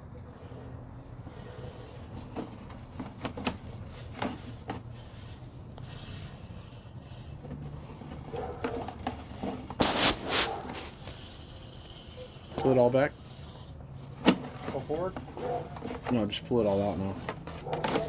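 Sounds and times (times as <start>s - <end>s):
clicks knocks and rubbing: 7.3s - 11.2s, 14.2s - 18.0s.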